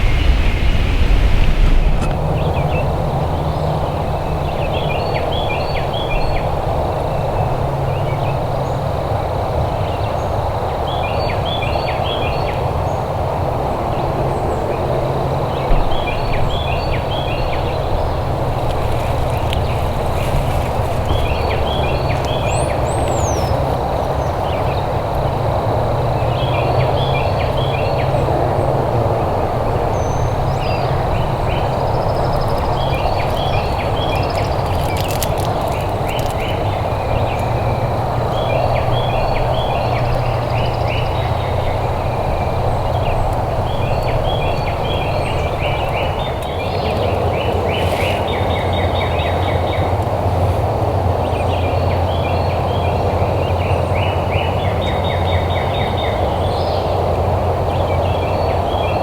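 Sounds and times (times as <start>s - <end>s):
low rumble of background noise: 0.0s - 59.0s
small birds chirping: 15.6s - 28.4s, 29.2s - 50.0s.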